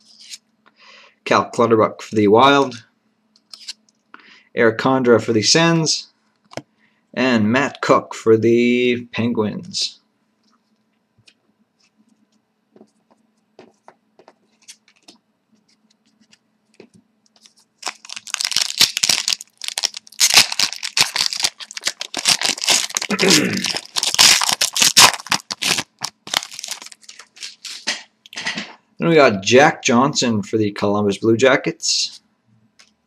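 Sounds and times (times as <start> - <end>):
wrapper tearing and crinkling: 17.4 - 28.0.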